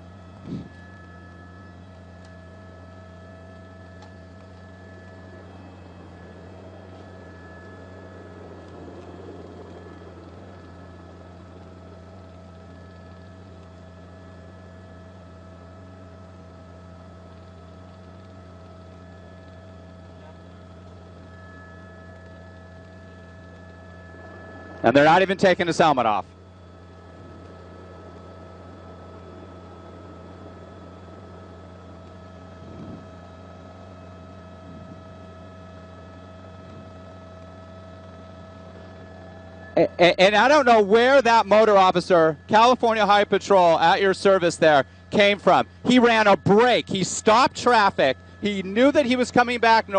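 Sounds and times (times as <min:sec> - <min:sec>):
low electrical hum: 0:00.0 - 0:49.9
faint high steady tones: 0:18.8 - 0:49.9.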